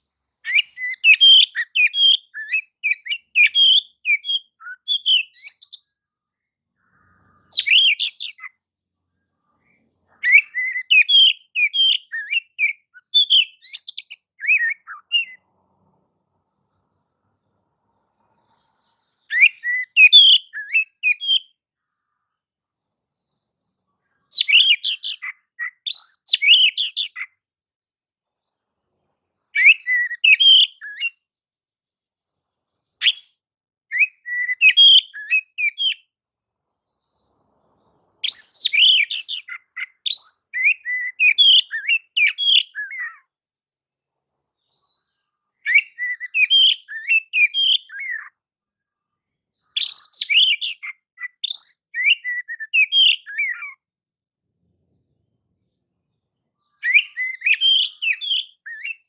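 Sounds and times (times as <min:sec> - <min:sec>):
bird singing whistles and chirps: 0:00.4 - 0:05.9, 0:07.4 - 0:08.5, 0:10.2 - 0:15.4, 0:19.3 - 0:21.6, 0:24.3 - 0:27.3, 0:29.6 - 0:31.2, 0:33.0 - 0:36.0, 0:38.2 - 0:43.2, 0:45.6 - 0:48.3, 0:49.8 - 0:53.8, 0:56.8 - 0:59.0.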